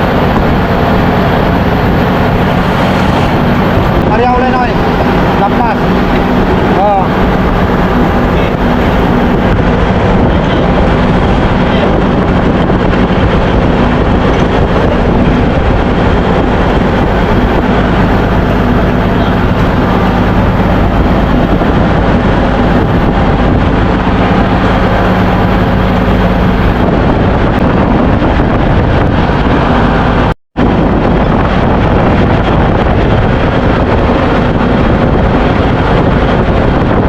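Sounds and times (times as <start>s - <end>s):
engine room machinery din: 0.0s - 37.0s
low hum: 0.0s - 37.0s.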